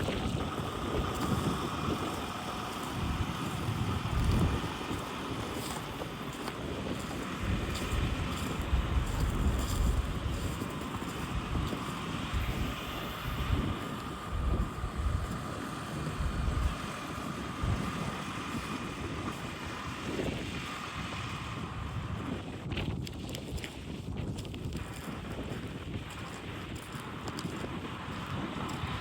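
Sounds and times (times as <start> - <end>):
faint hum: 0.0 - 22.2
wind buffeting microphone: 0.0 - 29.0.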